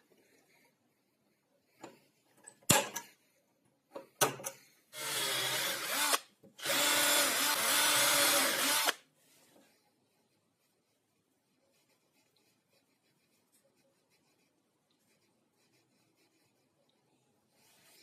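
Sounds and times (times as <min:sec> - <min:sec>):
power tool motor running: 0:05.0 - 0:09.0.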